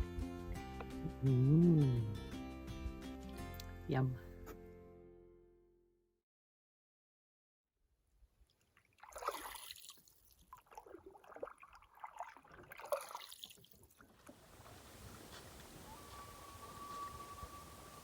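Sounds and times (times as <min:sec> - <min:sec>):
paddle strokes in water: 0:09.0 - 0:18.0
faint hiss: 0:14.4 - 0:18.0.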